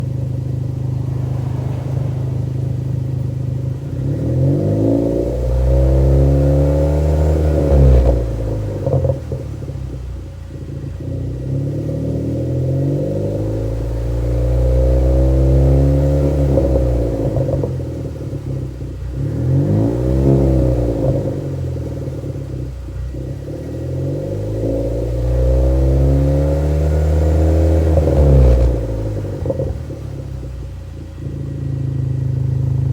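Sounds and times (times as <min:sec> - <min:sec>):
exhaust crackles and pops: 0:00.0 - 0:11.4
car engine revving: 0:00.0 - 0:32.9.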